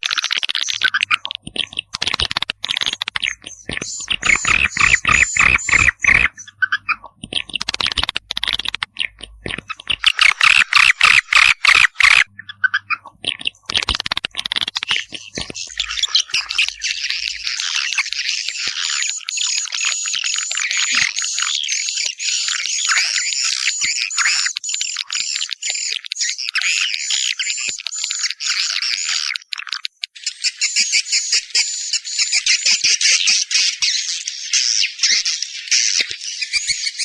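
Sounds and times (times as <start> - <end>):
swiftlets twittering: 0.4 - 12.5, 13.2 - 21.1.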